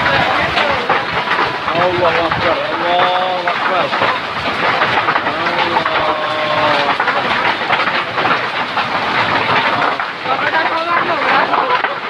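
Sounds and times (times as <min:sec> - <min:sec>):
hailstones clattering: 0:00.0 - 0:12.0
heavy rain roar: 0:00.0 - 0:12.0.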